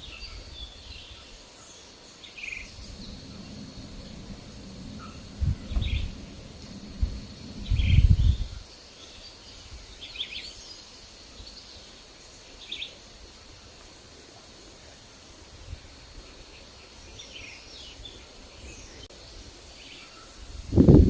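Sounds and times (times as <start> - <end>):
steady high hiss: 0.0 - 21.0
wind gusts on microphone: 2.4 - 8.8, 20.4 - 21.0.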